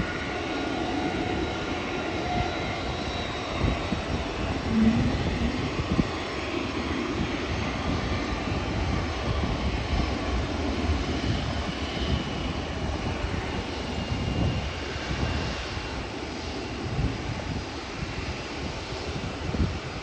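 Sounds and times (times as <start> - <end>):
jet engine rush: 0.0 - 20.0
faint high whine: 4.3 - 6.7.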